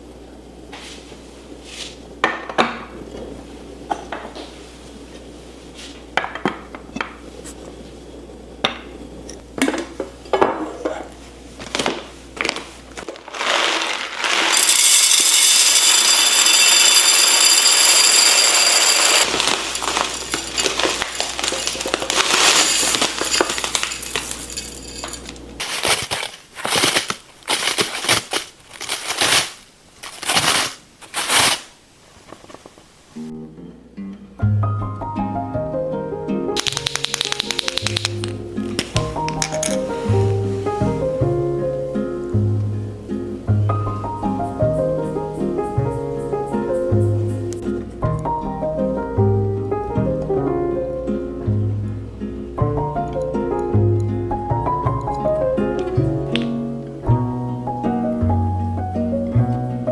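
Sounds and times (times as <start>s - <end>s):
kitchenware clinking and knocking: 14.5s - 31.6s.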